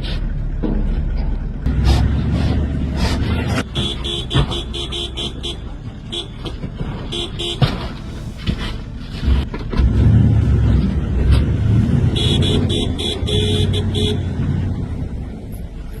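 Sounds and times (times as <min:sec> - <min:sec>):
motor vehicle rumble: 0:00.0 - 0:16.0
vehicle horn tooting: 0:03.5 - 0:08.6, 0:12.0 - 0:14.4.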